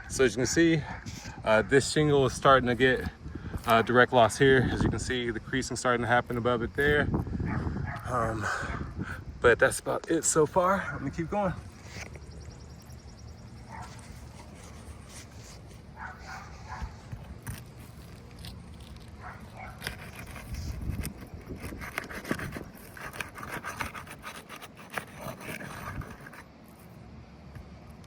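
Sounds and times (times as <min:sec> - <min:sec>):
roof shingles scraping: 0:13.6 - 0:26.9.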